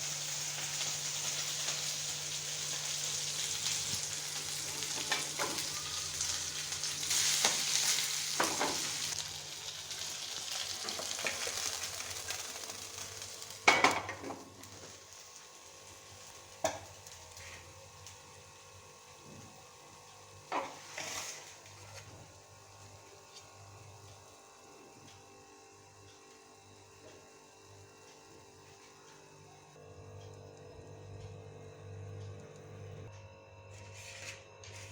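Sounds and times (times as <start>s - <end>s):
food sizzling in hot oil: 0.0s - 24.7s.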